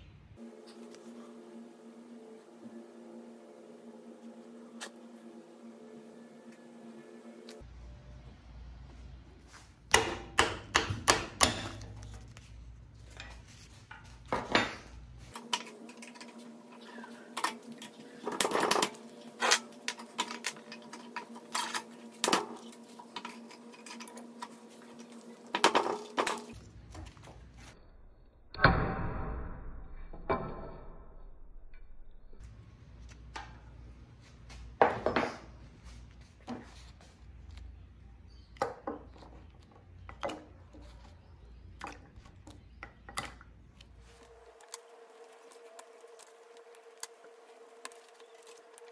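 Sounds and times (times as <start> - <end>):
low hum: 0.0 - 10.4, 11.0 - 34.8.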